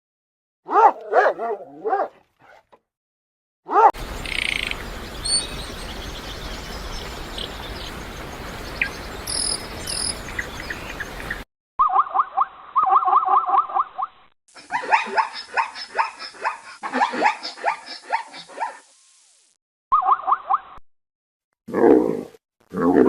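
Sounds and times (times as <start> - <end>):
dog barking: 0.7 - 2.6, 3.7 - 4.0, 14.6 - 18.8
birds chirping: 4.0 - 11.4
outdoor hiss: 4.0 - 11.4, 18.4 - 19.6.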